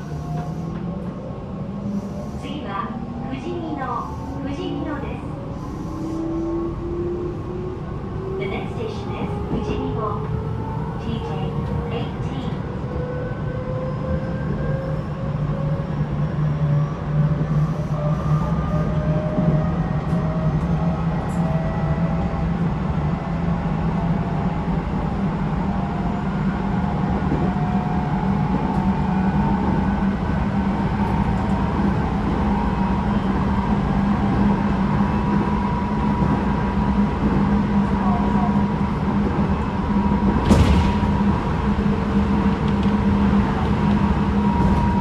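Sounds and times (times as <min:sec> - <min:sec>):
train wheels rumbling on track: 0:00.0 - 0:45.0.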